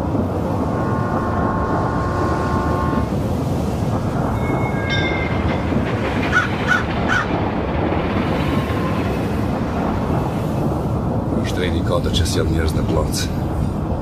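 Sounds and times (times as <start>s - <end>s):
train rumbling: 0.0s - 14.0s
train horn chord: 0.5s - 3.4s
thin high tone: 4.2s - 5.6s.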